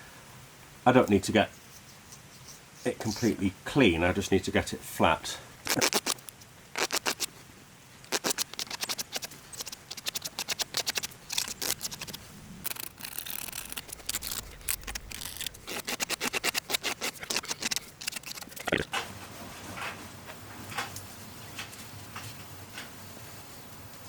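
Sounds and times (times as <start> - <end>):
hand scraping steel surface: 8.1 - 18.8.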